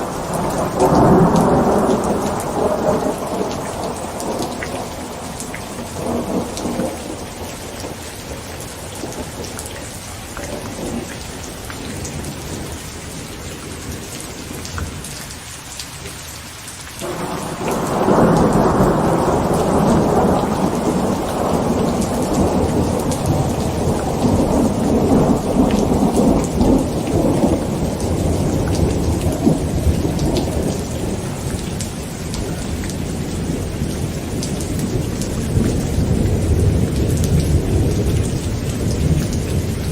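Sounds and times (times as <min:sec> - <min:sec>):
loud thunderclap: 0:00.0 - 0:08.0, 0:17.0 - 0:39.9
thunder rumbling: 0:00.0 - 0:13.2, 0:17.0 - 0:39.9
heavy rain on a tent: 0:00.0 - 0:39.9.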